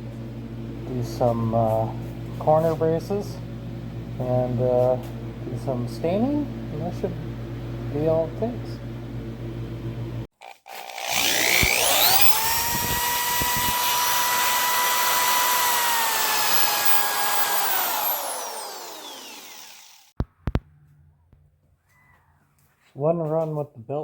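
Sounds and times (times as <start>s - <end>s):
power tool motor whine: 10.4s - 20.2s.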